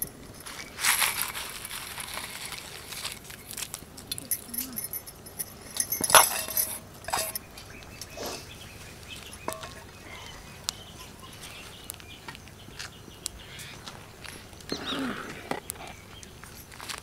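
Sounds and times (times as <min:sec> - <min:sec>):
faint bird chirps: 0:07.3 - 0:16.6.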